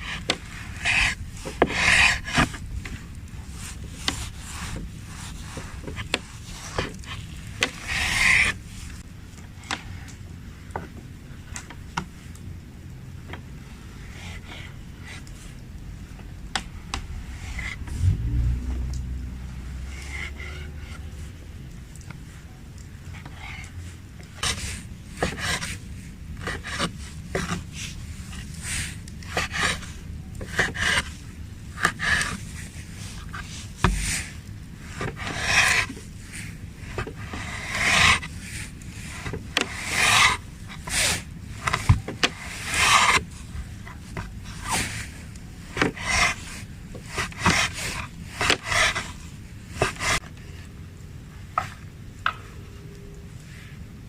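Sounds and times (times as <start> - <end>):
rubbing and scraping strokes: 0.0 - 9.1, 16.6 - 18.6, 19.5 - 50.3.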